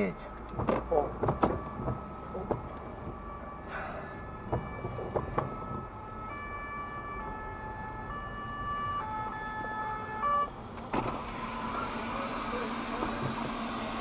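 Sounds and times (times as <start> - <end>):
electronic siren stepping pitches: 0.0 - 10.6
sharp knocks: 0.5 - 3.2, 4.4 - 5.9.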